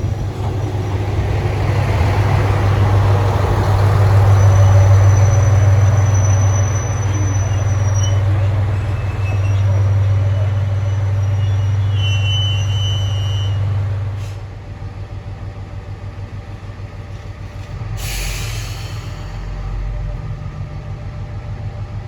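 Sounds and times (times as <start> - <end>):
railcar engine hum: 0.0 - 22.0
brake squeal: 2.6 - 14.4
air hiss from brakes: 17.1 - 19.7.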